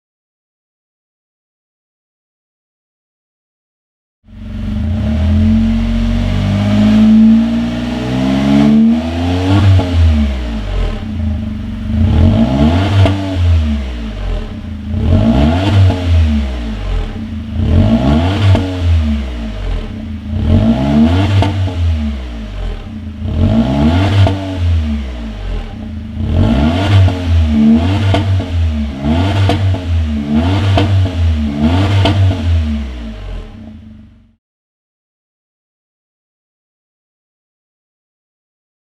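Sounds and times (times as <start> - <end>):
car engine revving and idling: 4.3 - 34.4.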